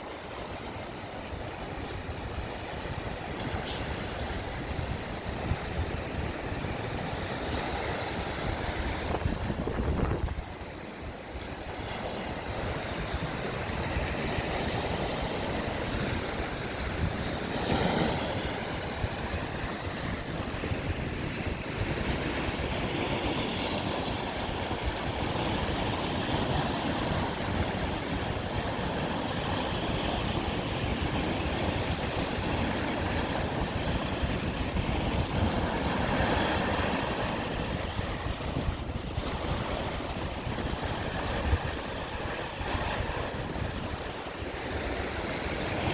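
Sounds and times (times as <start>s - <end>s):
waves breaking on shore: 0.0s - 45.9s
wind buffeting microphone: 0.0s - 45.9s.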